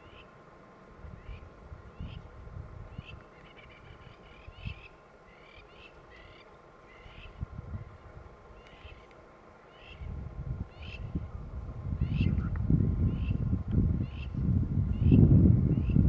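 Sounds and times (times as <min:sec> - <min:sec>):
wild birds chirping: 0:00.0 - 0:00.4, 0:02.9 - 0:11.3, 0:12.0 - 0:12.4, 0:14.0 - 0:16.0
low rumbling noise: 0:10.0 - 0:16.0.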